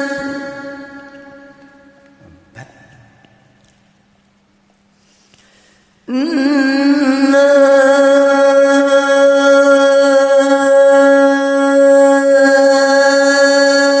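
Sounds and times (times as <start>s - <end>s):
man singing a long note: 0.0s - 2.6s, 6.1s - 14.0s.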